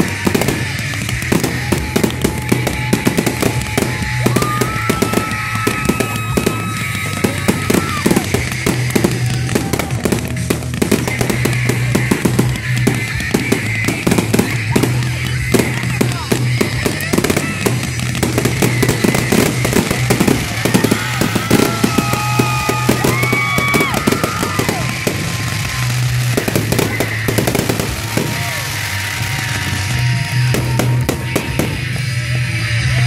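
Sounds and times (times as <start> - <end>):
fireworks cracking and popping: 0.0 - 33.0
whistling fireworks: 0.0 - 33.0.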